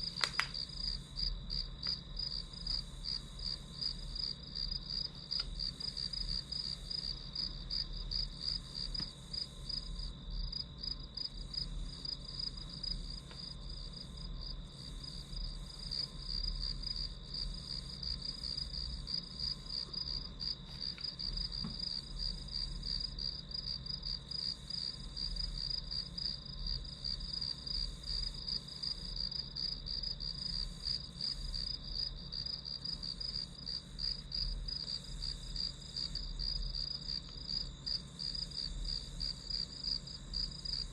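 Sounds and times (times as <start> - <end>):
crickets chirping: 0.0 - 40.9.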